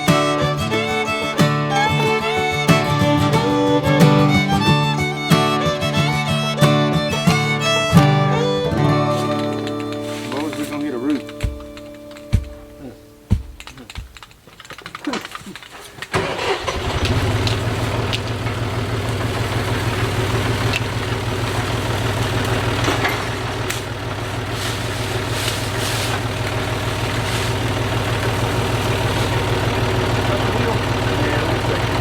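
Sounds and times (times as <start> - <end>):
engine starting and idling: 0.0 - 11.6, 15.1 - 32.0
clicks and rattles: 9.2 - 32.0.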